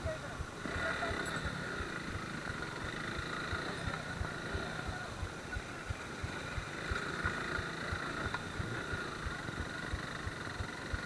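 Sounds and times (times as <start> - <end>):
motorcycle engine hum: 0.0 - 11.0.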